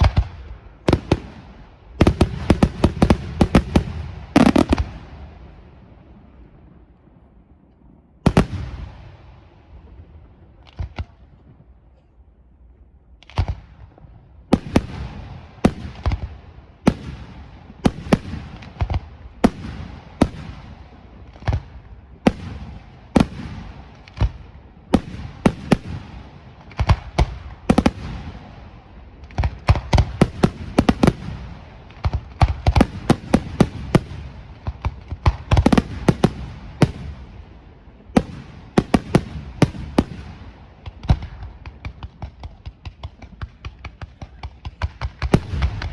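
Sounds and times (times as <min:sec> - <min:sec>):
firework shells bursting: 0:02.0 - 0:04.9.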